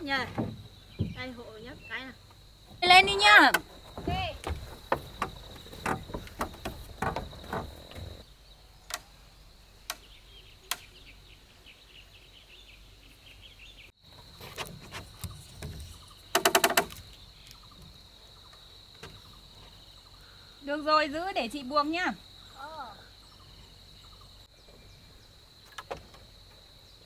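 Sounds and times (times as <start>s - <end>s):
wooden knocks and clatter: 0.0s - 8.2s, 14.4s - 18.0s
high insect drone: 0.0s - 11.9s, 14.1s - 27.0s.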